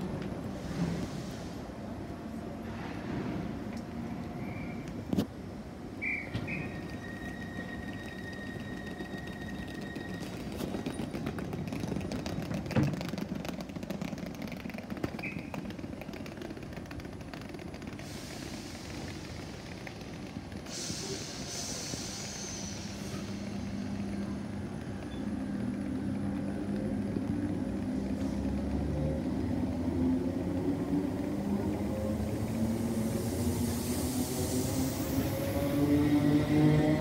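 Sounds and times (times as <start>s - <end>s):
hiss: 0.5s - 1.7s, 18.0s - 20.0s, 20.6s - 23.9s, 32.6s - 35.8s
electric train humming: 5.5s - 37.0s.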